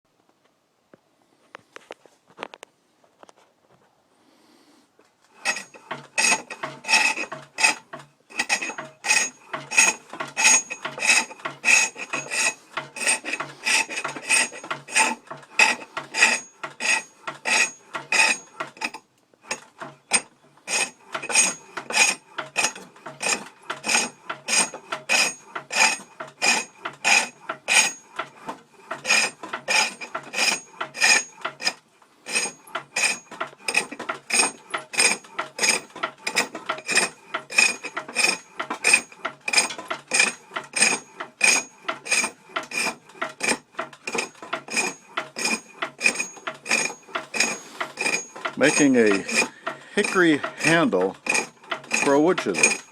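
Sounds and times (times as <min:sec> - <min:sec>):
lathe tool scraping wood: 0:05.3 - 0:52.9.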